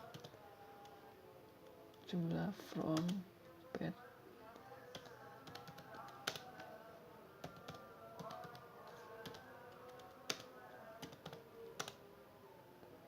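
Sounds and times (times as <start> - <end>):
computer keyboard typing: 0.0 - 0.4, 2.9 - 3.2, 4.9 - 6.7, 7.5 - 8.6, 9.2 - 12.0
faint background music: 0.0 - 13.0.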